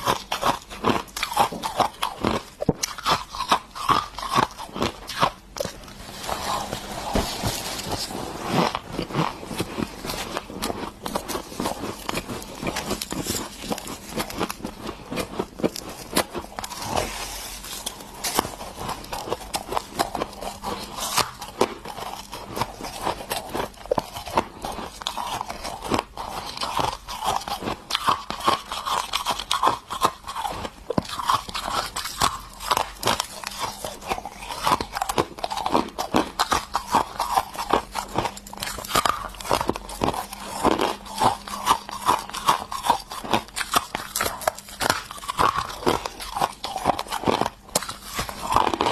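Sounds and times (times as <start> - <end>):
ice crunching being chewed: 0.0 - 48.9.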